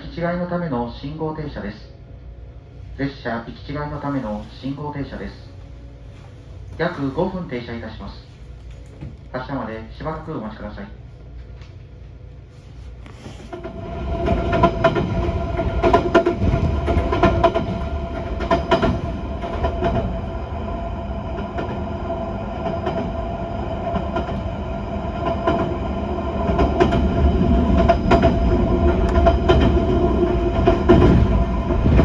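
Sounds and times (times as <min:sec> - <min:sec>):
train whine: 0:10.4 - 0:32.0.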